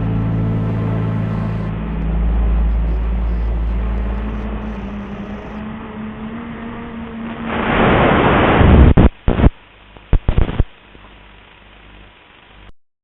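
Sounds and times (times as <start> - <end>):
wind blasting microphone: 3.8 - 9.5.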